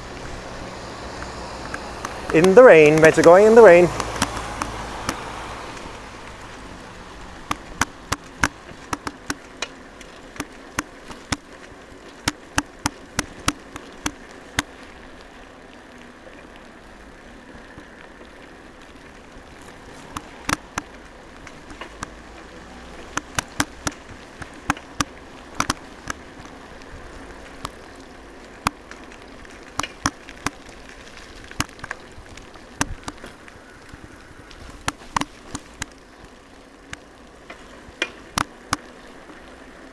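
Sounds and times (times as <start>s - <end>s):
steady hiss: 0.0s - 5.6s
raindrops tapping microphone: 0.0s - 39.9s.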